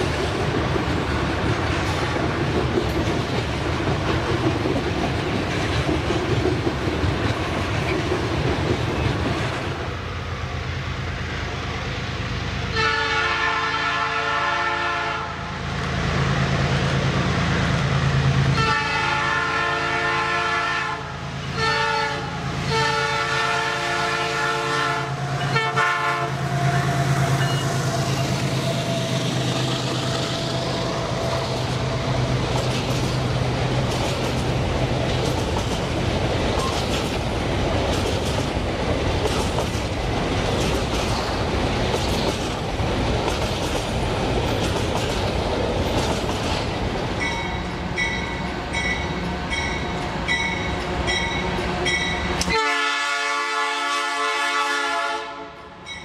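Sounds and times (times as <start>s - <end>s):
train horn blast: 12.7s - 15.5s, 18.5s - 28.3s, 51.8s - 55.9s
locomotive engine drone: 22.2s - 52.6s
wagons clattering on rails: 31.4s - 48.2s.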